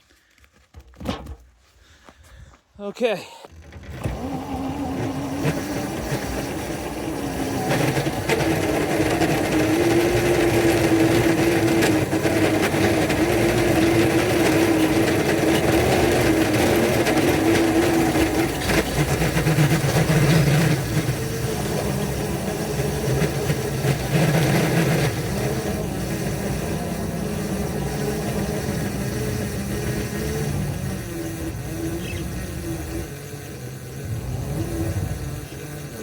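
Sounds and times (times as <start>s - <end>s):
locomotive mechanical hum: 1.2s - 36.0s.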